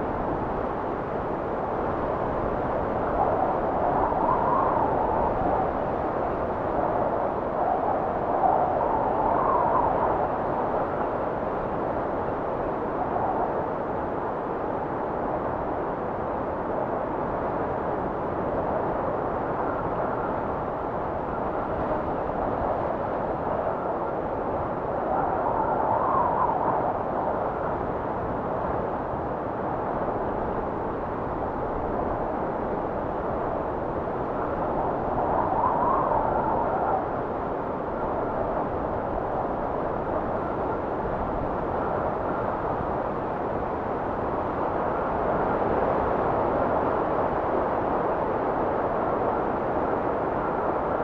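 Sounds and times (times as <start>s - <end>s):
blizzard wind rushing: 0.0s - 51.0s
faint wind whistle: 29.8s - 51.0s.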